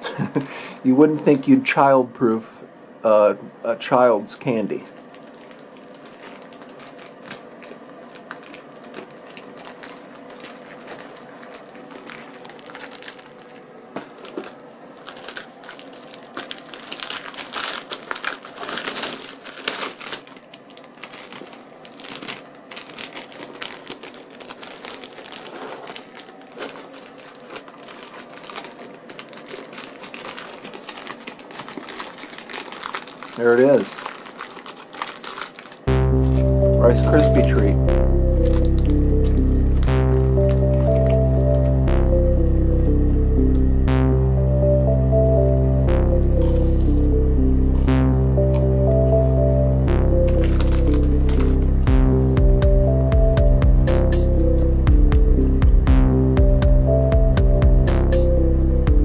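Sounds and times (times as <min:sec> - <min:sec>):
plastic wrapper crinkling: 0:04.6 - 0:37.7, 0:38.4 - 0:41.8, 0:50.3 - 0:51.9.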